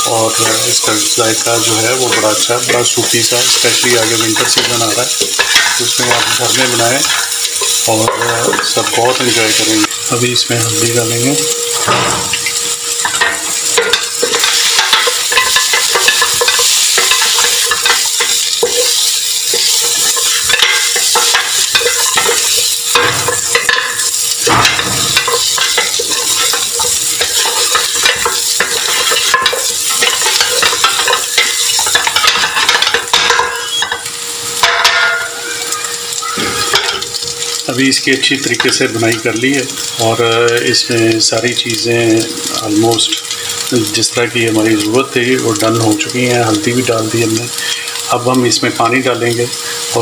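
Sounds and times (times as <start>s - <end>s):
meat sizzling in oil: 0.0s - 50.0s.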